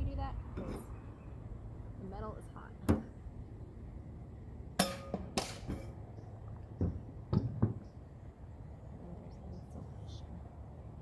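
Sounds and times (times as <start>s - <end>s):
sharp knocks and clatters: 6.8s - 7.9s.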